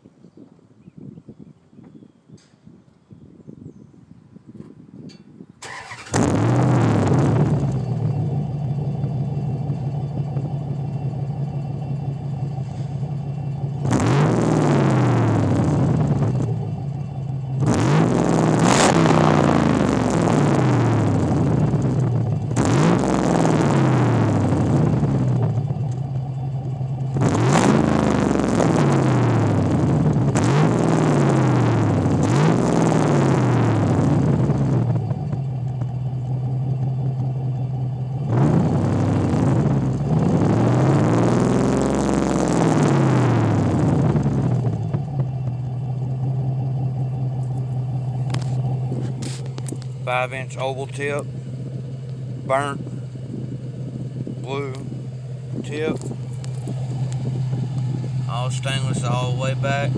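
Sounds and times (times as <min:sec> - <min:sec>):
car engine starting and idling: 0:05.6 - 0:59.9
engine revving: 0:05.6 - 0:59.9.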